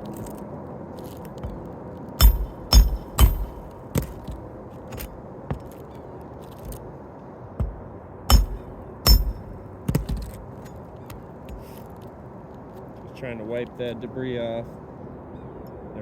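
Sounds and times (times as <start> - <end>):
roof shingles knocking and cracking: 2.2 - 5.8, 7.6 - 10.6.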